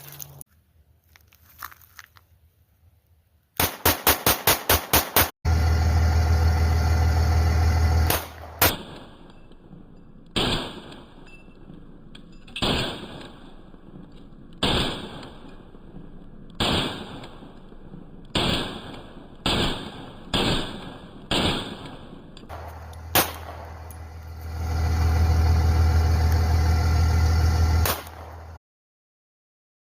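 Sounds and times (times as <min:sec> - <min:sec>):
pistol shots: 0:03.6 - 0:05.3, 0:08.1 - 0:09.4, 0:10.3 - 0:11.2, 0:12.6 - 0:24.2, 0:27.8 - 0:28.5
loud low rumble: 0:05.5 - 0:08.6, 0:22.5 - 0:28.6.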